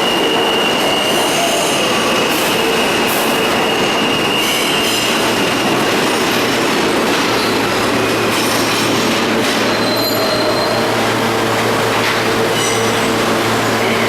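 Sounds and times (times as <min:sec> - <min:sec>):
high wheel squeal: 0:00.0 - 0:06.0, 0:09.5 - 0:11.0, 0:12.4 - 0:14.0
subway train on track: 0:00.0 - 0:14.0.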